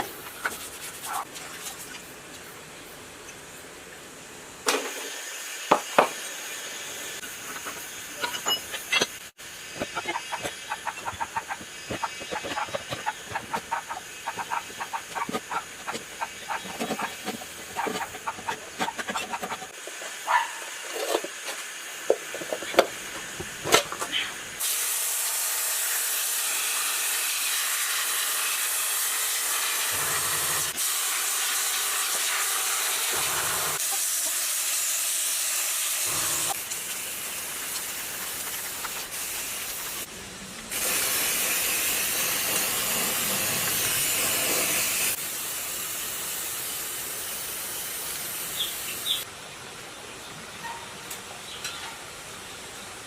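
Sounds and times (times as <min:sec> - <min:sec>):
high-pressure cleaning jet hissing: 0:24.6 - 0:40.1, 0:40.7 - 0:49.3.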